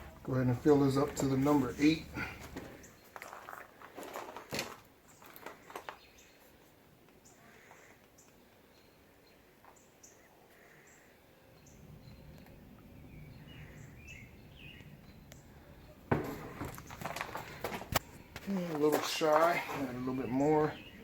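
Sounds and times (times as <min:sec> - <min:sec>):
can and bucket clattering: 0:16.1 - 0:18.0.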